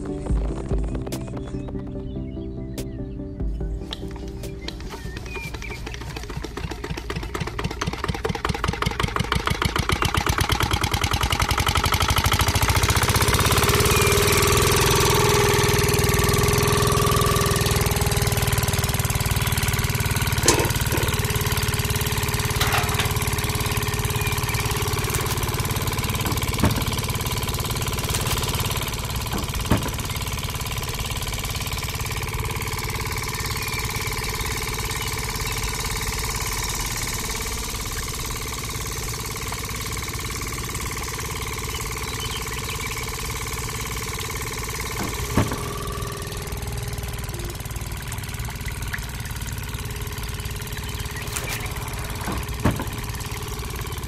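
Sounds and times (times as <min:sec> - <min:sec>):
small engine starting: 0:04.9 - 0:54.0
sharp knocks: 0:20.3 - 0:30.7, 0:44.8 - 0:46.3, 0:51.0 - 0:53.8.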